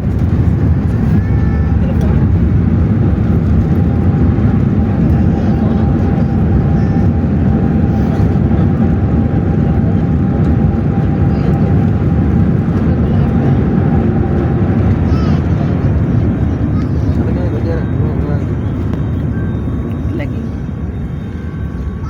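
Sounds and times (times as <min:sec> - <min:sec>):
airplane cabin engine rumble: 0:00.0 - 0:22.0
faint steady whine: 0:16.0 - 0:22.0.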